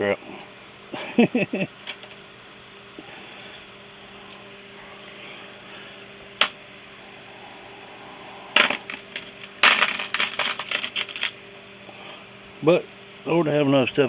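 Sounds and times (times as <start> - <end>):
hand tools clinking: 8.6 - 11.3
rattling clatter: 8.6 - 11.3.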